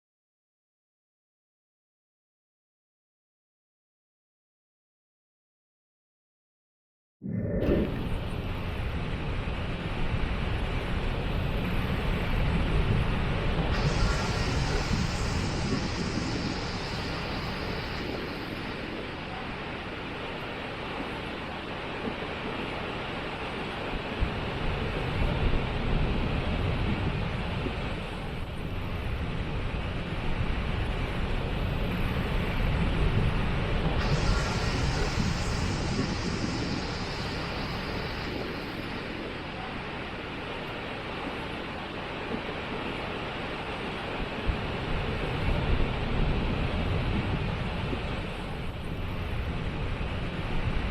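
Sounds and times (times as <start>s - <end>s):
waterfall rushing: 13.7s - 20.8s, 34.0s - 41.7s.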